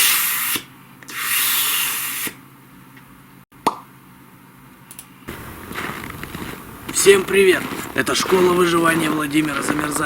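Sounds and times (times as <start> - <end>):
sharp pop: 3.6 - 3.9.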